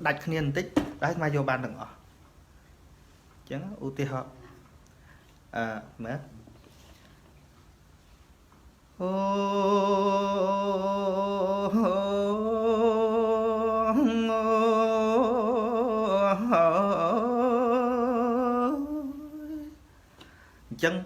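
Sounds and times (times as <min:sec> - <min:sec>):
person chanting: 0:09.0 - 0:19.8.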